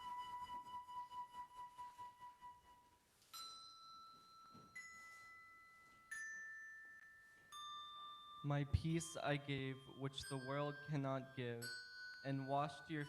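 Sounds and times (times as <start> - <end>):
flute wavering note: 0.0 - 3.0.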